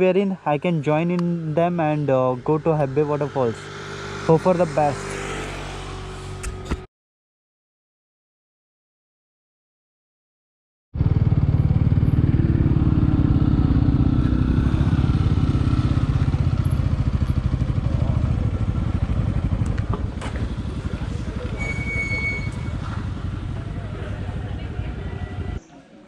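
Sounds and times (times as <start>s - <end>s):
motorcycle engine running: 1.5s - 6.9s, 11.0s - 25.6s.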